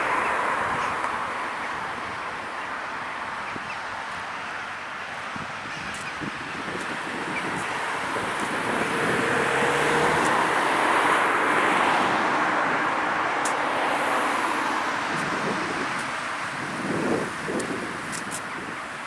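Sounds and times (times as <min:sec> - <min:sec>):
road vehicle passing by: 0:05.6 - 0:18.7.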